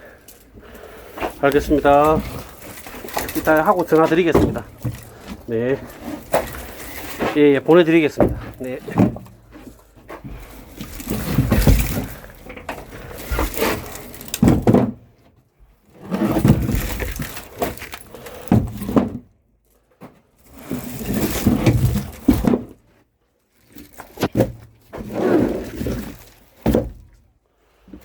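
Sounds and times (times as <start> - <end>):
firewood logs knocking: 0.0 - 15.1.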